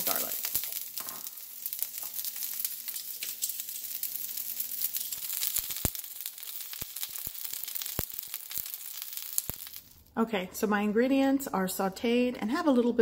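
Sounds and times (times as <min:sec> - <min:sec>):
oil popping: 0:00.0 - 0:10.0
vegetables sizzling in hot oil: 0:00.0 - 0:10.1.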